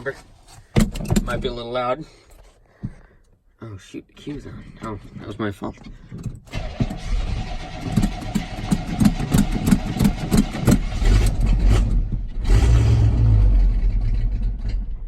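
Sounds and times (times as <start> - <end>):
engine cranking on starter: 6.5 - 14.8.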